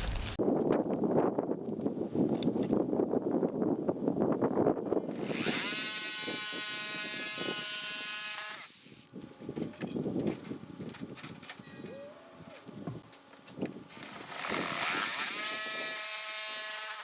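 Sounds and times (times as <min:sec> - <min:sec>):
electric power tool whine: 0:05.1 - 0:09.0, 0:13.9 - 0:17.0.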